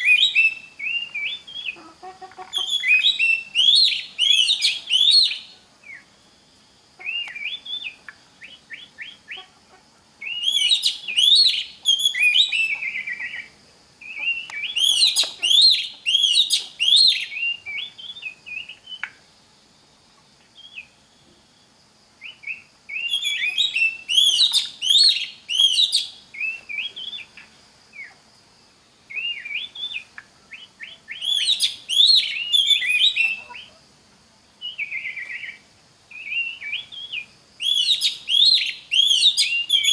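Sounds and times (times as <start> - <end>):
bird singing whistled phrases: 0.0 - 1.8, 2.5 - 6.1, 7.0 - 9.4, 10.2 - 19.2, 22.2 - 27.4, 29.1 - 33.7, 34.6 - 39.9.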